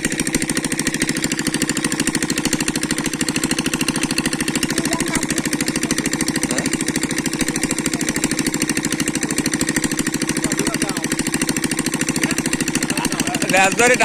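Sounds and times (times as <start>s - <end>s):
small engine thudding: 0.0s - 14.0s.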